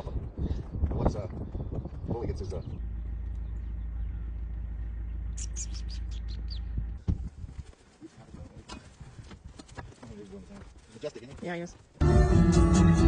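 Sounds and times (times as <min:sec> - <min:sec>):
wind rumble on microphone: 0:00.0 - 0:09.9
small bird chirping: 0:01.9 - 0:07.0.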